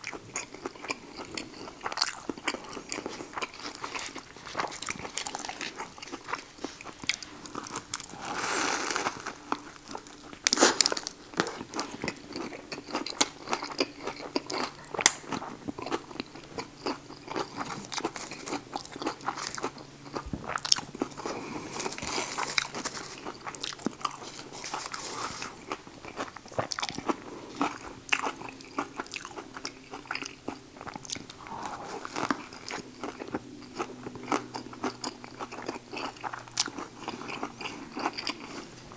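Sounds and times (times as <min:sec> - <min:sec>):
person chewing a sandwich: 0:00.0 - 0:38.9.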